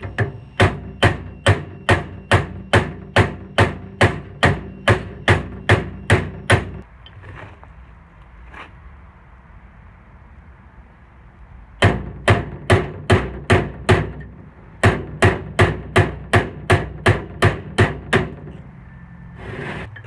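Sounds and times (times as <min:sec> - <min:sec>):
hammer striking steel punch: 0:00.0 - 0:06.8, 0:11.8 - 0:18.6.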